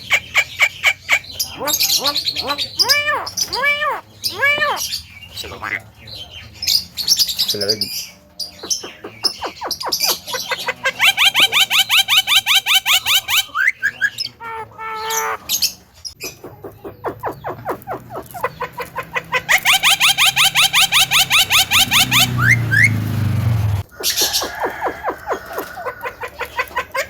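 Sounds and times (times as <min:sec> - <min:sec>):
harsh bird call: 0:00.0 - 0:27.0
myna calling repeated rising notes: 0:19.5 - 0:23.8.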